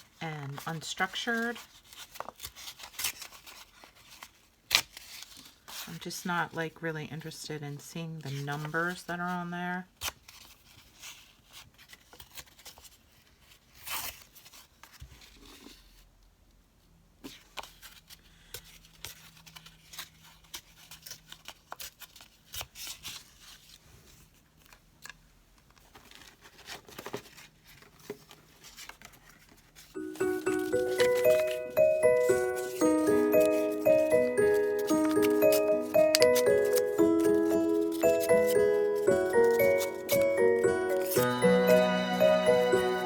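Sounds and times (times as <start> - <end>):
tune playing: 30.0 - 43.0.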